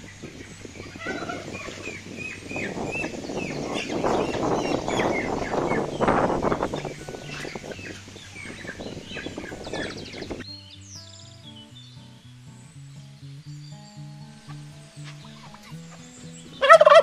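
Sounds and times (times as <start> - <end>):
chickens squawking: 0.0 - 10.4, 14.4 - 17.0
wings flapping: 0.2 - 8.0.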